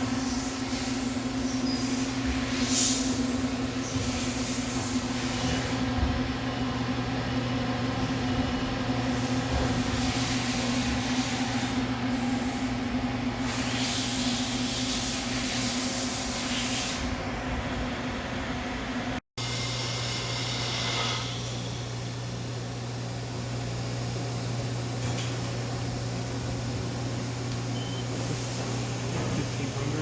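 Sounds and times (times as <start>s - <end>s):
machine hiss: 0.0s - 5.8s, 13.4s - 17.1s
machine mechanical hum: 0.0s - 30.0s.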